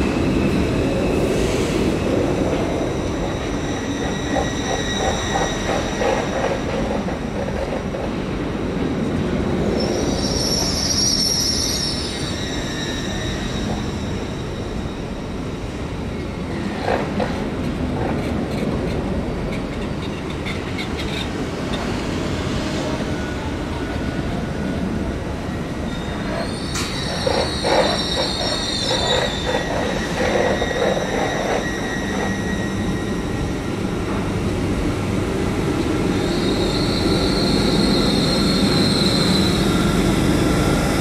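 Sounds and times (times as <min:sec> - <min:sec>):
train wheels rumbling on rails: 0:00.0 - 0:41.0
high wheel squeal: 0:01.0 - 0:07.2, 0:09.6 - 0:15.2, 0:25.6 - 0:34.2, 0:36.0 - 0:41.0.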